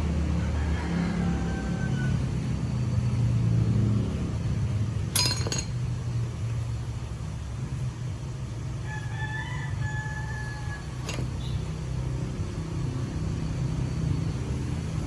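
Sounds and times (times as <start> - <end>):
low mechanical rumble: 1.6 - 15.0
sharp metallic clink: 5.2 - 5.8.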